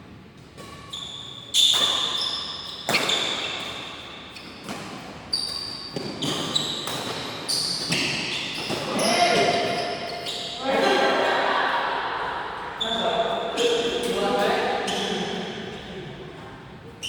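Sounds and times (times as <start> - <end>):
high-pitched squeaks: 5.3 - 10.6
racket striking shuttlecock: 5.7 - 9.8.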